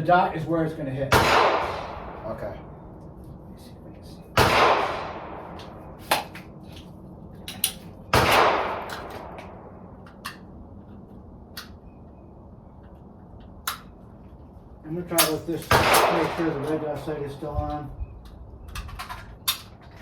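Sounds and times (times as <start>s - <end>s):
loud gunshots with reverberation: 1.1s - 2.7s, 4.4s - 6.3s, 8.1s - 9.8s, 15.2s - 17.1s.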